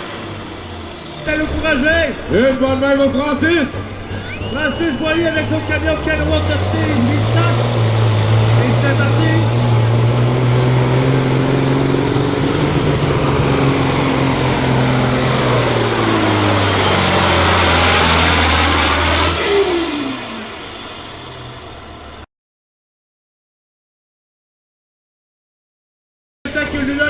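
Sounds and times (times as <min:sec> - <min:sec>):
diesel truck engine lugging: 0:00.0 - 0:22.3
turbo whistle: 0:03.8 - 0:06.0, 0:14.0 - 0:22.3.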